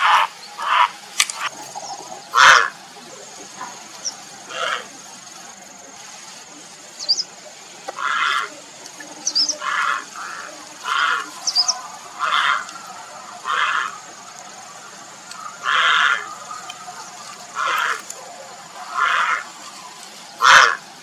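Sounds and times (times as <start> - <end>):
heron harsh calls: 0.0 - 1.0, 2.2 - 2.8, 4.5 - 4.9, 8.0 - 8.5, 9.5 - 14.1, 15.4 - 18.1, 18.8 - 19.6, 20.4 - 20.9.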